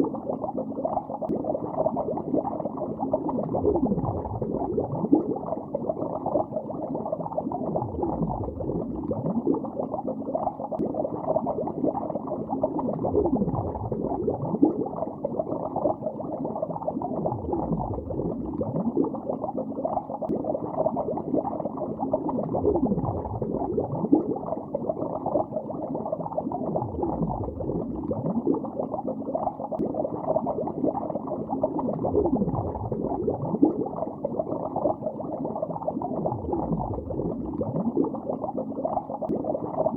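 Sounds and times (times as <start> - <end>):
muffled underwater bubbling: 0.0 - 39.9.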